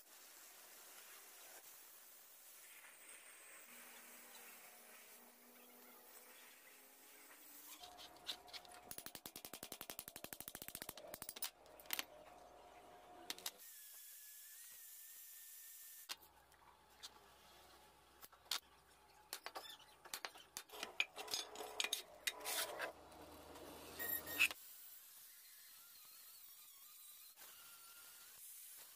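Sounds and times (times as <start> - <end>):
metal clinks and knocks: 10.8 - 12.2.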